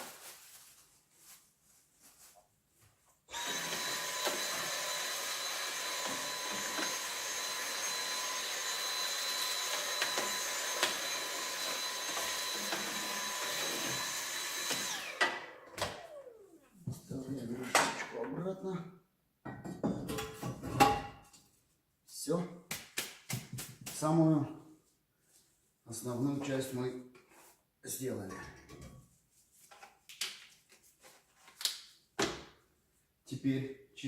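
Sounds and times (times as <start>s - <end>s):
vacuum cleaner whining: 3.3s - 18.0s.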